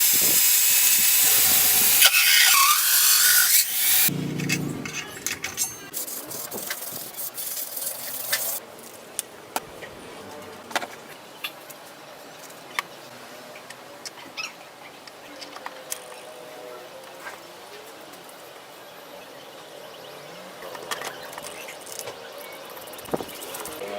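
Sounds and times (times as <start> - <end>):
loud hissing tool: 0.0 - 4.1
metal parts and tools clicking: 2.2 - 8.6.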